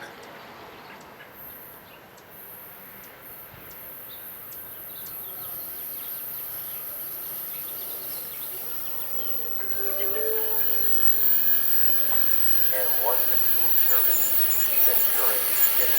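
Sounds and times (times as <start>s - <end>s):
distant approaching train: 6.4s - 15.9s.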